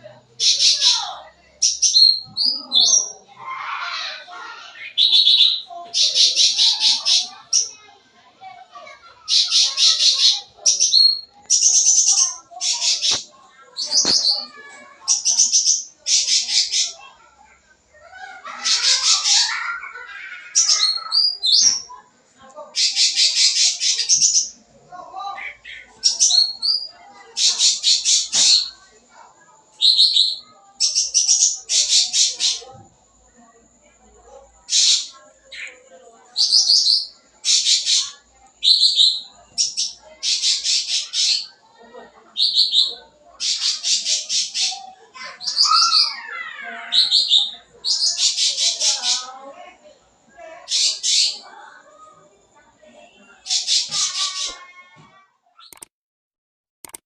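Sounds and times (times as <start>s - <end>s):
songbird harsh chattering: 0.4s - 3.2s, 3.9s - 7.9s, 9.2s - 17.1s, 18.5s - 21.9s, 22.7s - 24.6s, 25.4s - 28.8s, 29.8s - 32.7s, 34.7s - 35.8s, 36.4s - 41.6s, 42.4s - 49.3s, 50.7s - 51.4s, 53.4s - 54.6s.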